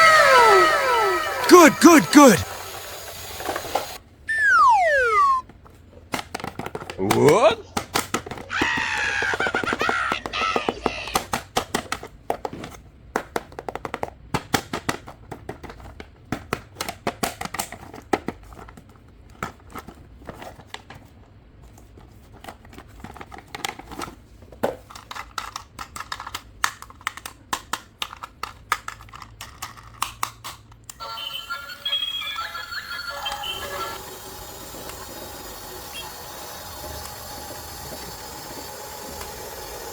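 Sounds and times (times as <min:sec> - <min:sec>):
wavering high pitched sound: 0:04.3 - 0:05.4.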